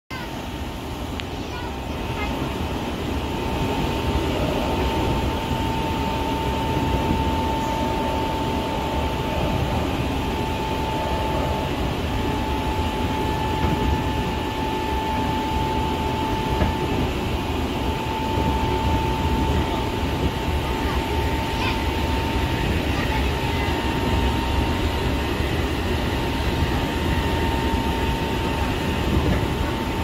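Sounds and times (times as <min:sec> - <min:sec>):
constant high tone: 0:00.1 - 0:30.0
rumble of train wheels on rail: 0:00.1 - 0:30.0.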